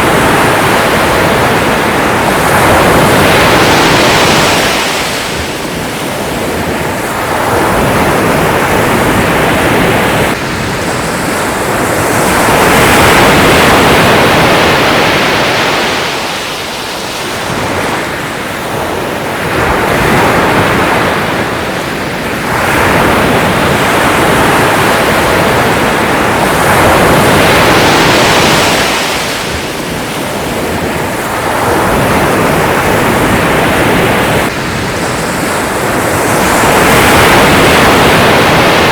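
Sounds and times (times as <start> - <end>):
sea waves breaking: 0.0 - 38.9.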